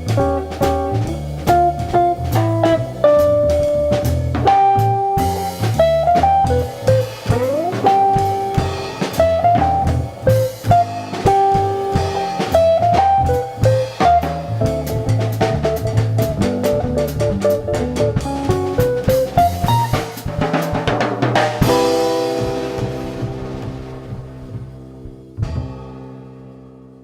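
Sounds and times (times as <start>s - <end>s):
jazz guitar melody: 0.0s - 26.1s
upright bass line: 0.0s - 26.2s
steady drums: 0.0s - 26.3s
cymbal crashes: 7.1s - 12.8s.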